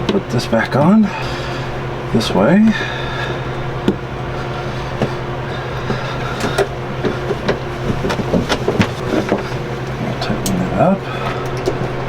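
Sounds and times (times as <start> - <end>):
steady machinery hum: 0.0 - 12.0.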